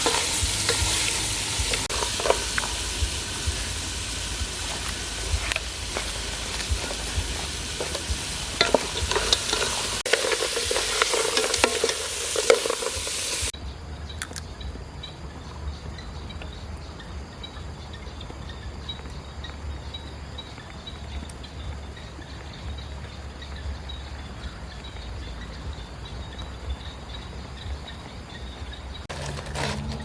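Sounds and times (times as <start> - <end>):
food sizzling in a pan: 0.0 - 13.6.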